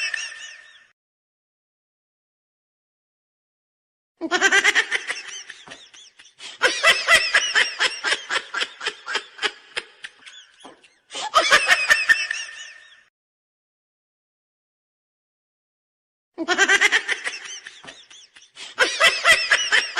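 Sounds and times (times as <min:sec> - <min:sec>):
high-pitched laughter: 0:00.0 - 0:00.9, 0:04.2 - 0:13.1, 0:16.4 - 0:19.9.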